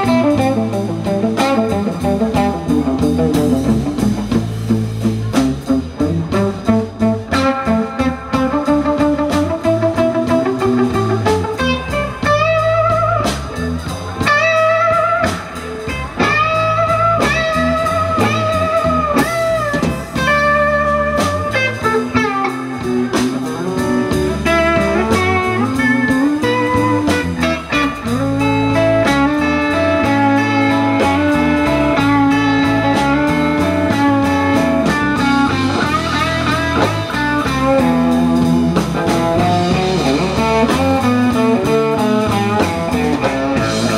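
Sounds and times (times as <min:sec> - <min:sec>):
drums: 0:00.0 - 0:43.9
electric guitar bending notes: 0:00.0 - 0:43.9
walking bass line: 0:00.0 - 0:43.9.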